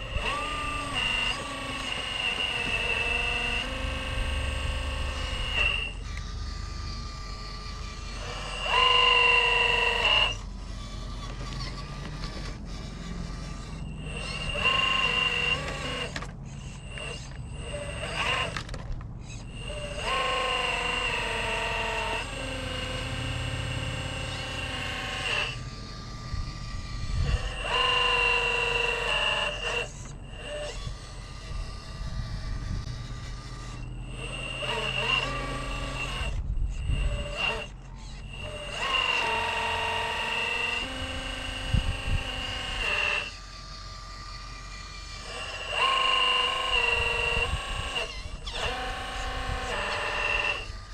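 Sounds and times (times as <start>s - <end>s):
rc car motor whining: 0.0s - 50.9s
wind on microphone: 26.1s - 27.9s, 30.8s - 33.3s, 36.1s - 37.6s, 40.9s - 42.9s.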